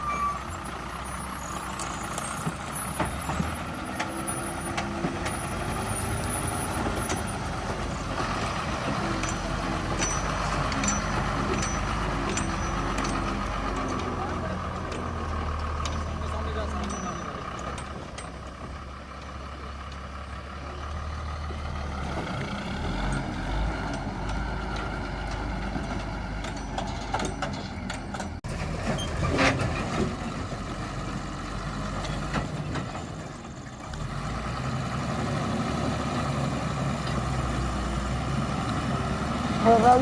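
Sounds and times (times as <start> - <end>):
drilling rig truck engine running: 0.0 - 40.0.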